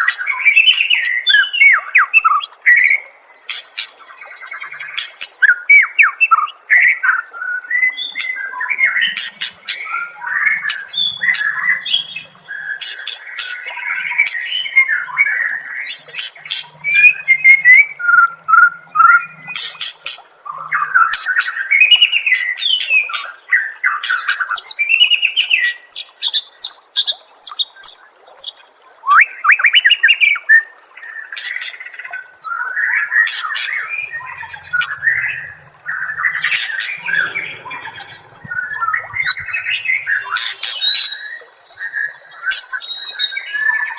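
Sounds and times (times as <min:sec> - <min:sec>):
bird singing whistled phrases: 0:16.6 - 0:19.4, 0:27.4 - 0:30.7, 0:33.2 - 0:43.9.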